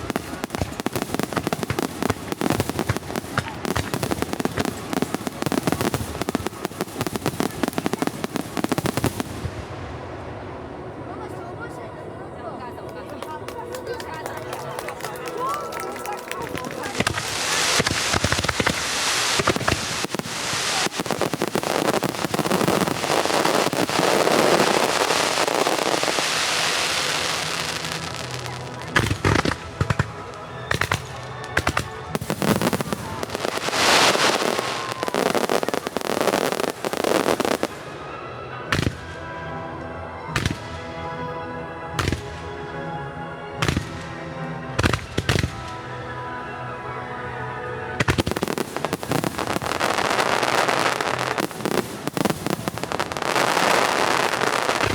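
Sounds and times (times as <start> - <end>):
sharp firework bangs: 0.0 - 9.6, 16.8 - 37.8
firework bursts and crackling: 0.0 - 10.8, 12.9 - 39.2, 44.8 - 45.8, 47.9 - 54.9.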